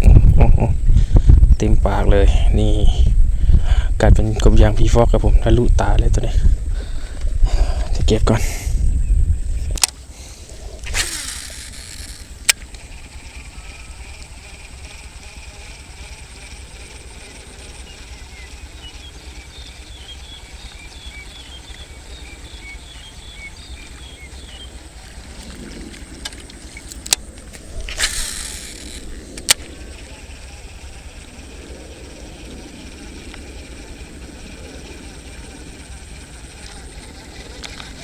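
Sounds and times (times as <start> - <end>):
wind buffeting microphone: 0.0 - 9.9, 10.5 - 38.0
sharp clicks: 9.7 - 31.5, 32.8 - 34.3
faint high chirps: 10.9 - 25.3.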